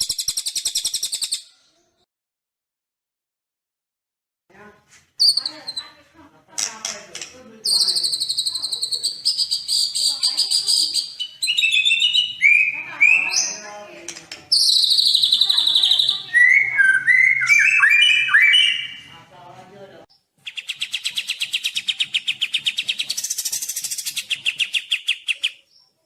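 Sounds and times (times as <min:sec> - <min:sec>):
buzzy bird trills: 0:14.5 - 0:19.0, 0:20.2 - 0:25.8.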